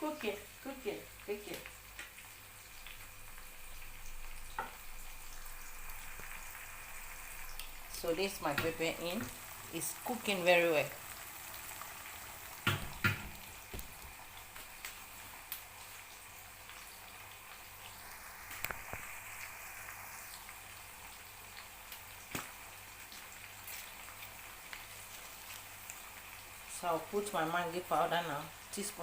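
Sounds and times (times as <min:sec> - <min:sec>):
onion and pepper sizzling in oil: 0:00.0 - 0:29.0
spoon knocking against pot: 0:12.7 - 0:13.3.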